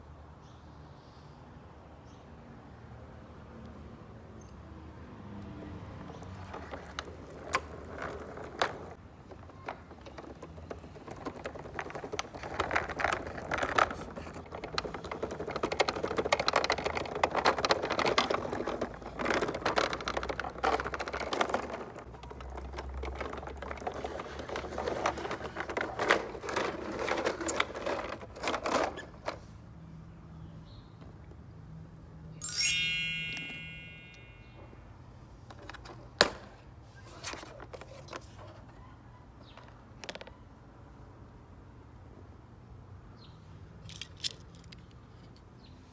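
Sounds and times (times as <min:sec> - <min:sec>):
toy vehicles clattering: 0:05.9 - 0:29.5, 0:43.8 - 0:45.4.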